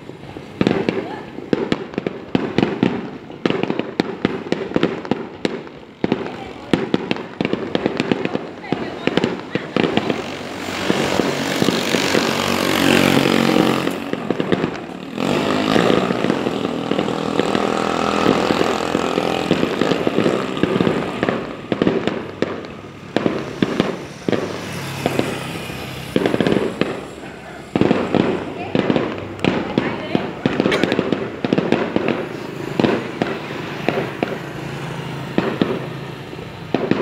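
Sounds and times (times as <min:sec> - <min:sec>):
fireworks crackling and popping: 0:00.0 - 0:37.0.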